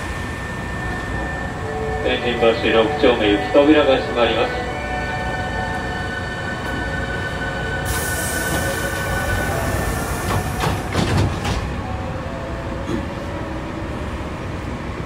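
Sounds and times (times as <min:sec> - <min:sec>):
electric train setting off: 0:00.0 - 0:12.8
air hiss: 0:07.8 - 0:10.8.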